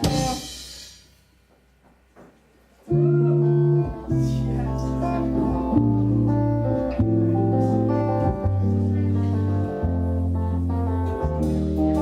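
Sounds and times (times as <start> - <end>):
guitar and bass chords: 0.0 - 0.6, 2.9 - 12.0
rock band ensemble hit: 0.0 - 1.0.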